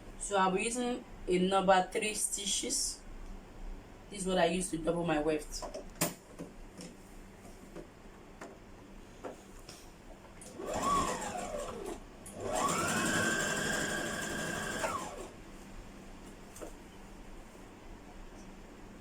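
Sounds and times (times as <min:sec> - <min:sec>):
electric sewing machine stitching: 0:10.4 - 0:15.4.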